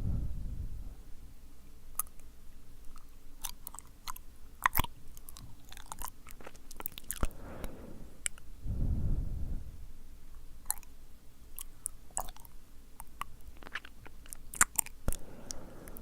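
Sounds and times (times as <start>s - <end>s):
wet mouth clicks and smacks: 1.9s - 7.3s, 10.6s - 10.9s, 11.5s - 16.0s
breath on microphone: 7.2s - 9.8s, 15.1s - 16.0s.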